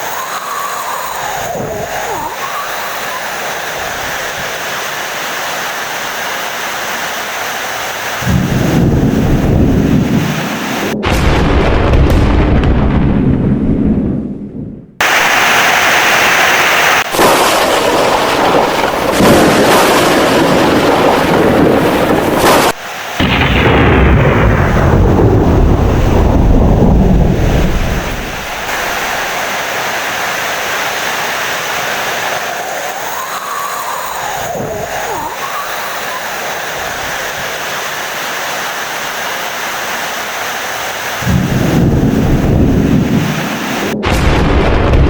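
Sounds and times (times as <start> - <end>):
heavy rain: 0.0 - 12.8, 15.0 - 45.0
low thunder rumble: 8.2 - 15.0, 17.2 - 22.4, 23.2 - 29.4, 41.2 - 45.0.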